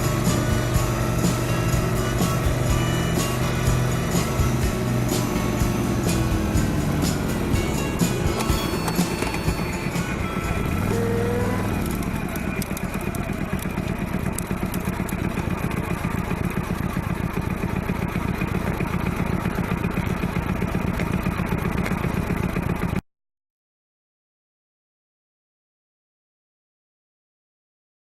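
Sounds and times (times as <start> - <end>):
road and wind noise: 0.0 - 22.1
motorcycle engine running: 0.0 - 23.0.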